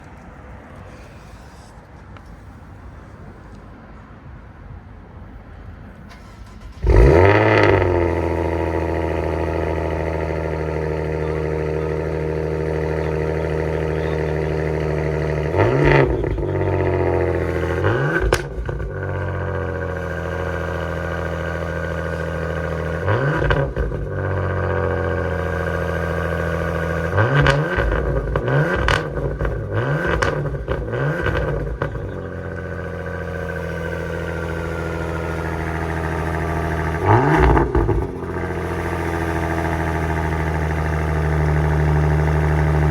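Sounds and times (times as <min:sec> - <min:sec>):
car engine cold start: 0:06.0 - 0:12.3
car engine fast idle: 0:06.1 - 0:42.9
car engine throttle blips: 0:06.1 - 0:42.9.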